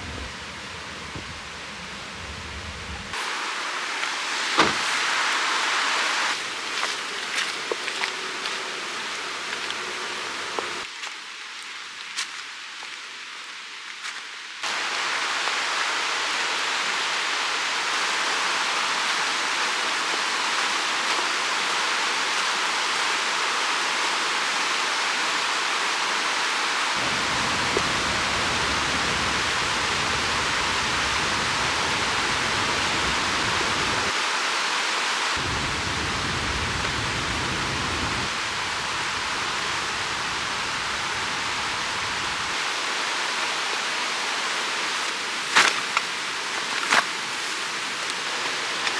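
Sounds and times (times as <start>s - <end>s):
low rumble: 0.0s - 3.2s
river rushing: 0.0s - 6.8s, 14.6s - 44.9s.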